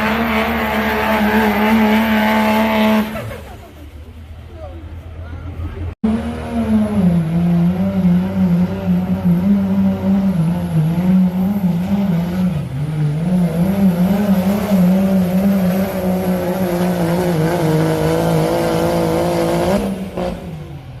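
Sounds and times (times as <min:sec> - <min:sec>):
diesel truck engine under load: 0:00.0 - 0:21.0.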